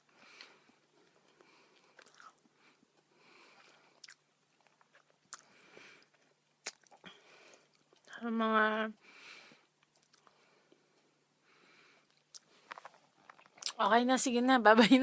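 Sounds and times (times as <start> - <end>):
person chewing: 0.2 - 8.1, 9.7 - 11.2, 12.0 - 13.8.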